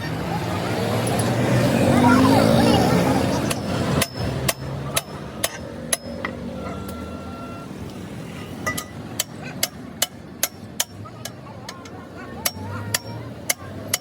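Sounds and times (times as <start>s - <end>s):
hammer striking metal: 3.5s - 7.0s, 8.6s - 11.4s.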